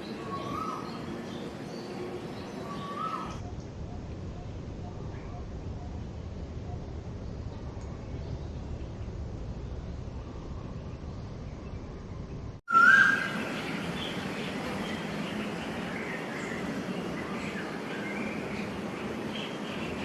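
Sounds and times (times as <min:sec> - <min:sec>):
birds chirping and calling: 0:00.0 - 0:05.9, 0:12.7 - 0:20.0
low steady rumble: 0:03.4 - 0:12.6
loud whistled bird note: 0:12.7 - 0:13.5.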